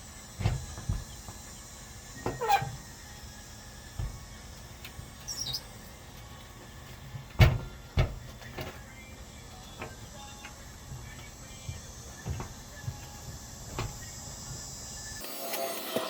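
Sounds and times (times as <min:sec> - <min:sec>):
short high squeak: 0:02.3 - 0:02.8, 0:05.2 - 0:05.7
hard knocks and clunks: 0:07.4 - 0:08.7.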